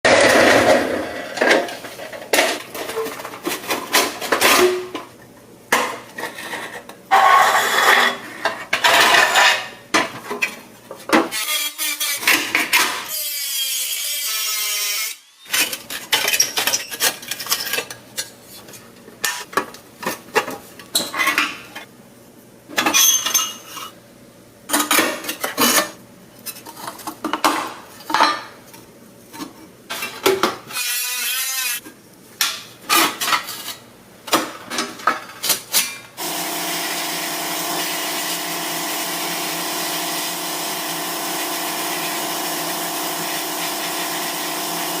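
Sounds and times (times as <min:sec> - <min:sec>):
scraping and rubbing: 0:06.2 - 0:09.7.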